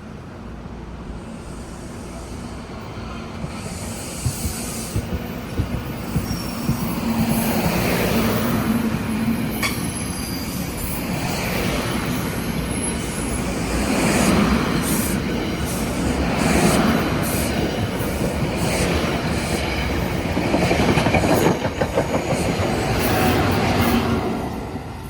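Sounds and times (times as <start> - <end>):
train rumbling on rails: 0.0 - 25.0
wheel squeals: 3.6 - 8.5
knocks: 4.2 - 7.8.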